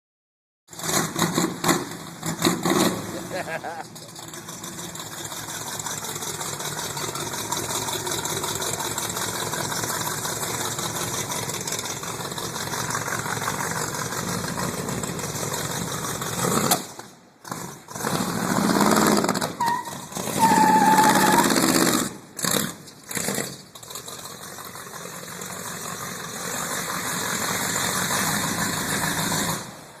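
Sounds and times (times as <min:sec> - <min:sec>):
car engine running: 0:03.4 - 0:16.6.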